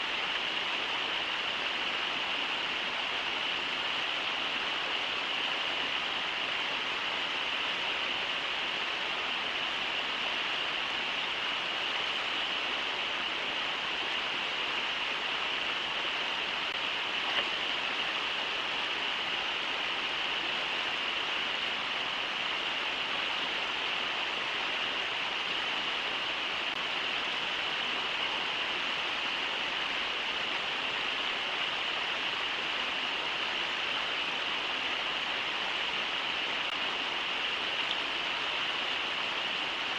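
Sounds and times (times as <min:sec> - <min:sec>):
river water rushing over falls: 0:00.0 - 0:39.9.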